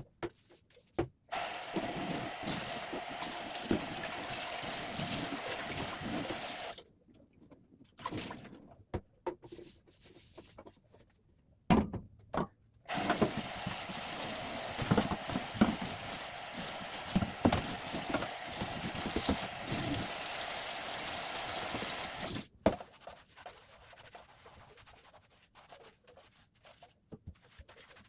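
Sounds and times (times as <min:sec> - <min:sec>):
tap water running into sink: 0:01.3 - 0:06.8, 0:12.9 - 0:22.5
items clattering in sink: 0:12.9 - 0:20.4.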